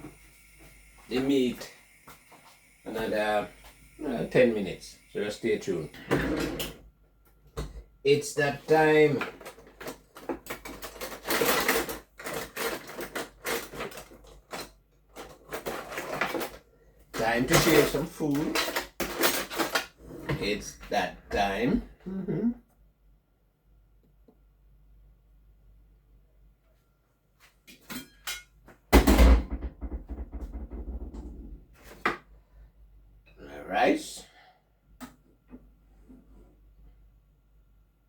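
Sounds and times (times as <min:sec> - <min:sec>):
dishes and utensils clattering: 0:27.8 - 0:28.6.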